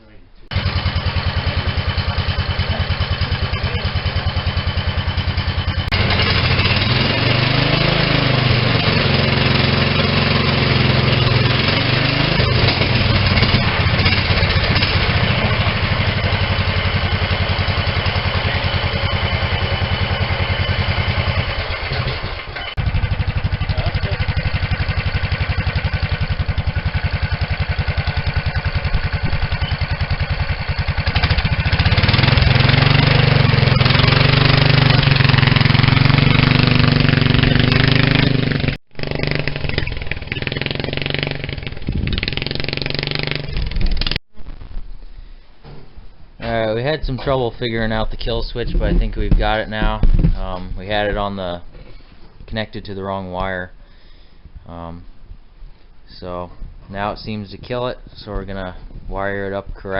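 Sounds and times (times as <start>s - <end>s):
small engine revving: 0.5s - 44.2s.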